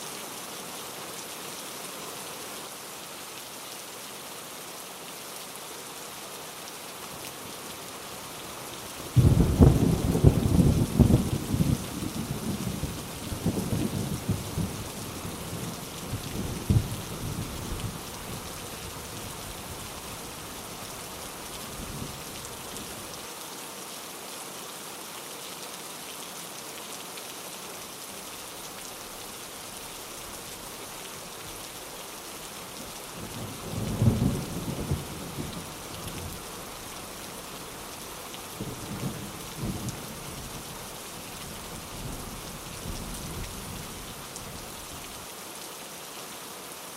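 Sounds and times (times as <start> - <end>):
heavy rain pattering: 7.1 - 23.2, 27.8 - 45.3
thunder rumbling: 9.2 - 12.8.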